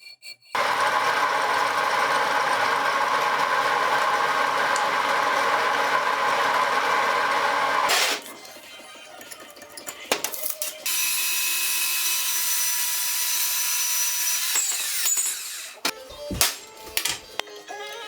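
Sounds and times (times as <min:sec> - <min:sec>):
electric power tool running: 0:00.6 - 0:08.2, 0:10.8 - 0:15.9.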